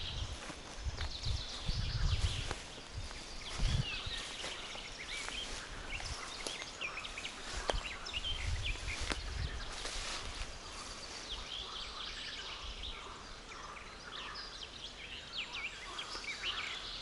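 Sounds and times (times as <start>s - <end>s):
footsteps on path: 0.0s - 11.8s
songbirds chirping and singing: 0.0s - 17.0s.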